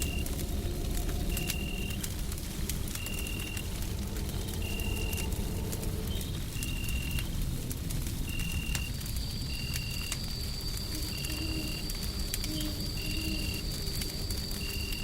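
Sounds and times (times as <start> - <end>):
low rumbling hiss: 0.0 - 9.7
wood fire crackling: 0.0 - 15.0.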